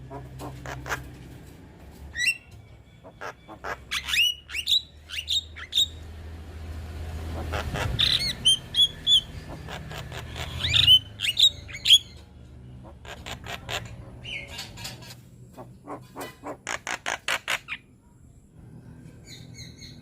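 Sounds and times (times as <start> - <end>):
myna chirping and whistling: 2.1 - 6.0, 7.5 - 12.2, 19.2 - 20.0.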